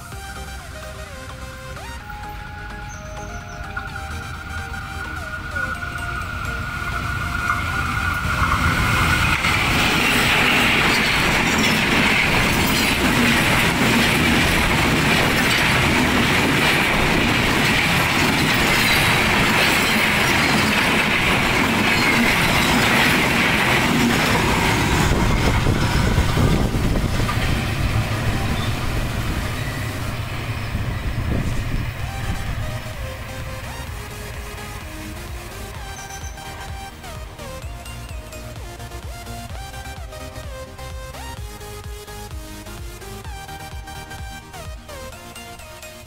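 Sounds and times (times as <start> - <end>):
train rushing past: 0.0 - 46.0.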